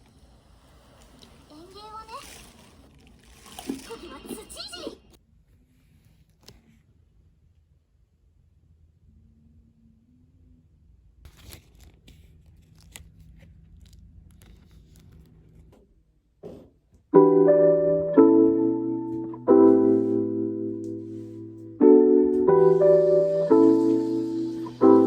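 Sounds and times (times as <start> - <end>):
piano chords ringing: 17.1 - 25.0.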